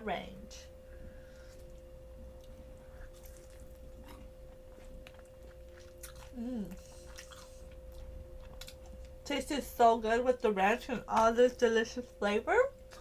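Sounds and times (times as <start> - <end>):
faint steady hum: 0.0 - 13.0
chewing and biting fried chicken: 1.6 - 9.2
person humming: 6.3 - 7.1.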